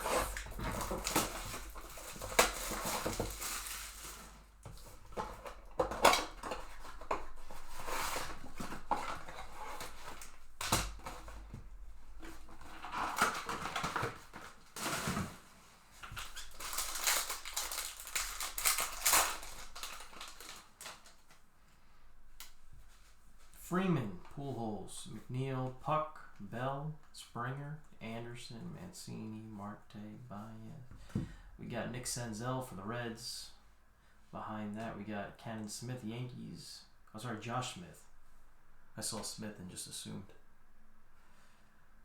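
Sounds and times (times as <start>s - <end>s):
card packs tearing open: 0.0s - 11.5s, 12.5s - 15.4s, 16.0s - 21.3s
plastic wrapping crinkling: 0.0s - 21.4s.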